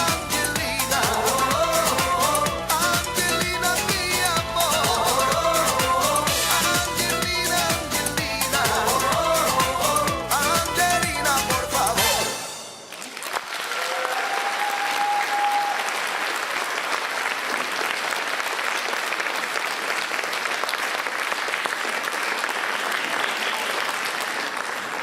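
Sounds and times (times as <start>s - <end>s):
audience applauding: 12.5s - 25.0s
drawn-out cheer: 13.4s - 16.1s.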